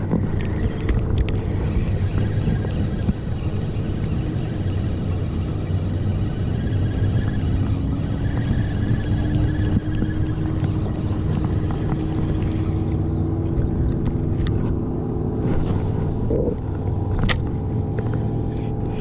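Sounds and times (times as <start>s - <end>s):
motorboat engine humming: 0.0s - 19.0s.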